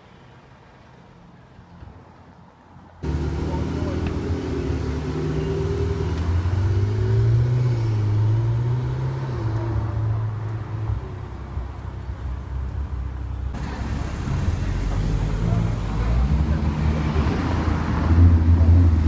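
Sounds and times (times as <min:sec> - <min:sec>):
sports car pulling away: 0:03.0 - 0:10.3.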